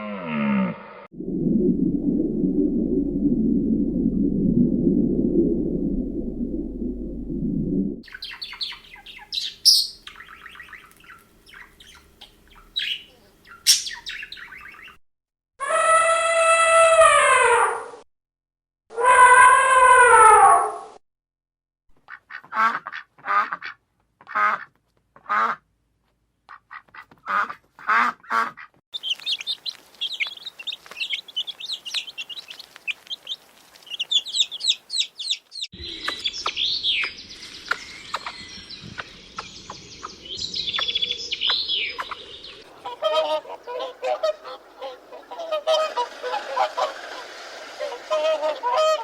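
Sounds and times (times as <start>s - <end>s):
harsh bird calls: 8.0s - 15.0s, 29.0s - 49.0s
high-pitched bird chirping: 8.0s - 15.0s, 29.0s - 44.2s
background noise: 22.0s - 49.0s.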